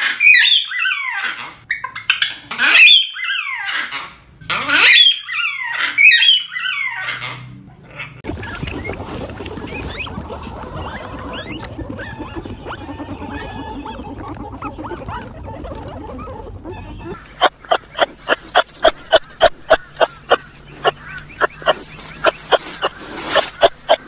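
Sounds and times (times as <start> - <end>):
guinea pigs squeaking: 0.0 - 24.0
honk-like calls: 4.5 - 24.0
rustling: 8.2 - 19.6.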